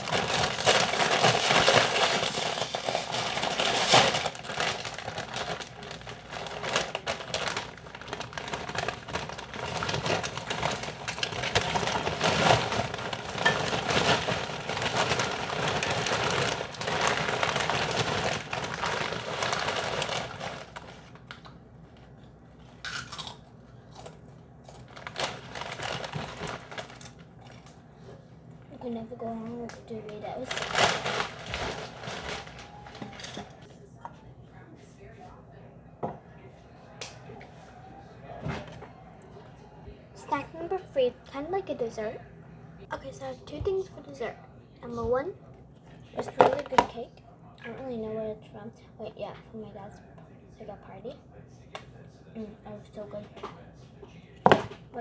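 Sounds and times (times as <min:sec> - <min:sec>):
chips rattling being poured: 0:00.0 - 0:21.0
chip bag crinkling: 0:00.0 - 0:21.4, 0:22.6 - 0:27.8, 0:30.2 - 0:33.6, 0:46.2 - 0:46.9.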